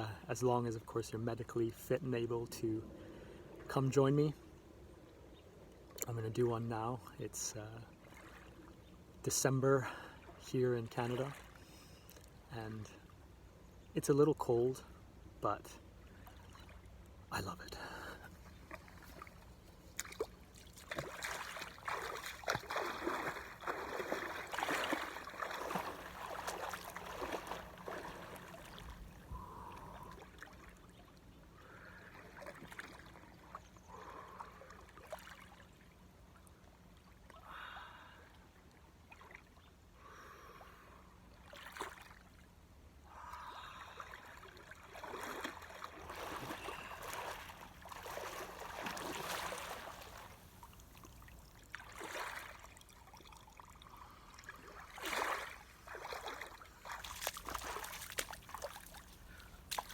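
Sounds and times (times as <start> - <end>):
water splashing and trickling: 7.8 - 13.2, 15.9 - 37.3, 41.3 - 42.6, 43.5 - 59.9.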